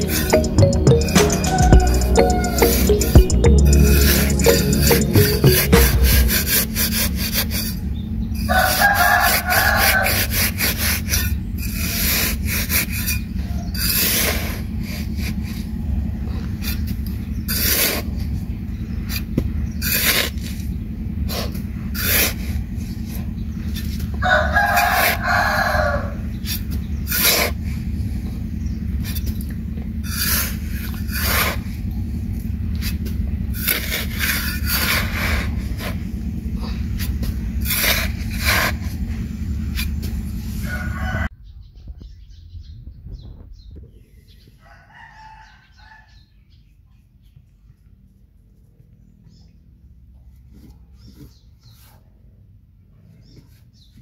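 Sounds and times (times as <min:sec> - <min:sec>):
steady low hum: 0:00.0 - 0:08.5, 0:26.0 - 0:44.6
rooster crowing: 0:01.3 - 0:03.0, 0:08.5 - 0:10.4, 0:24.2 - 0:26.3, 0:40.4 - 0:41.3, 0:44.6 - 0:46.4.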